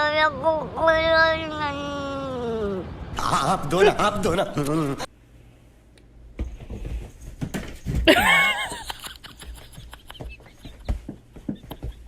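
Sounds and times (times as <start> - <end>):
light taps and knocks: 9.5 - 12.0.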